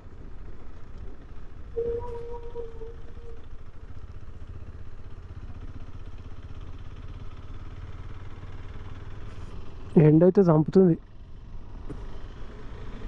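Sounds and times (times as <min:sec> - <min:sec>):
motorcycle engine running: 0:00.0 - 0:10.1
steady tone: 0:01.8 - 0:03.5.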